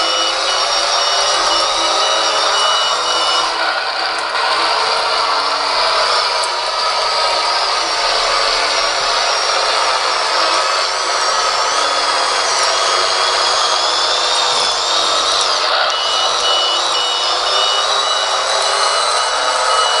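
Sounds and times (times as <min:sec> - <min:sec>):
backup alarm beeping: 0:00.0 - 0:03.6, 0:14.9 - 0:20.0.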